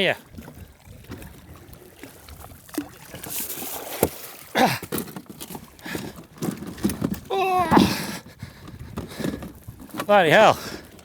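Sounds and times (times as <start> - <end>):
water splashing: 0.0 - 4.7.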